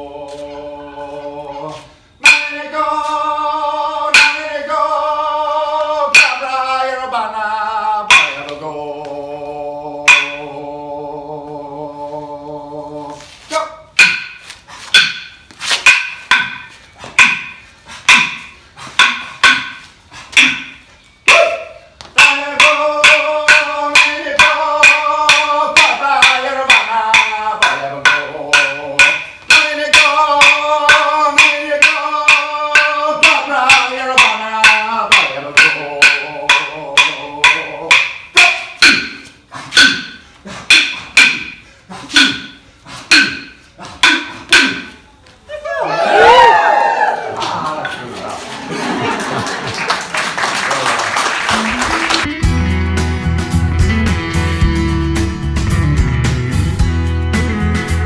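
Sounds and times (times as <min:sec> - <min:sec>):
man chanting: 0:00.0 - 0:13.9, 0:21.3 - 0:44.9
wooden clapsticks knocking: 0:08.1 - 0:08.6, 0:14.0 - 0:19.8, 0:20.4 - 0:21.4, 0:22.1 - 0:45.0.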